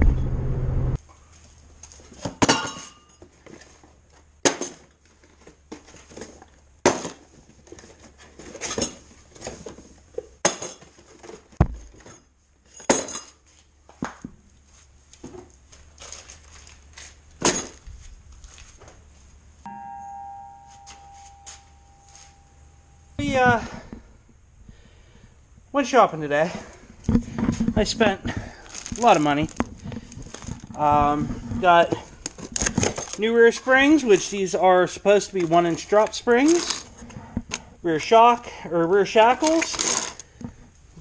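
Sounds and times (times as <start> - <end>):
faint low hum: 14.9 - 33.2.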